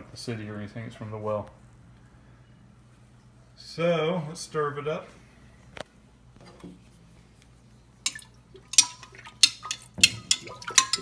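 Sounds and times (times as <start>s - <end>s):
utensil clinking against container: 8.1s - 11.0s
water stirring: 8.1s - 11.0s.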